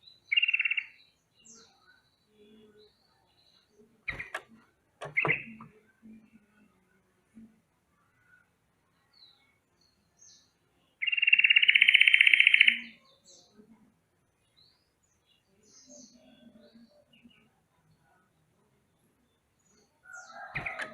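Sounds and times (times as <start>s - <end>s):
faint bird chirps: 0.0s - 6.6s, 8.0s - 13.8s, 14.4s - 20.9s.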